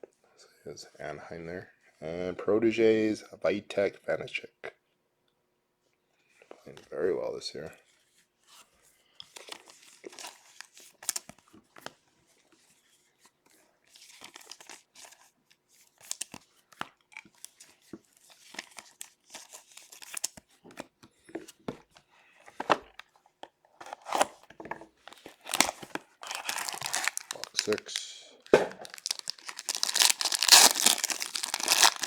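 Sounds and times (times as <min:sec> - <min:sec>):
card packaging tearing and crinkling: 0:23.8 - 0:24.4, 0:25.1 - 0:32.0
cards being handled: 0:25.1 - 0:32.0.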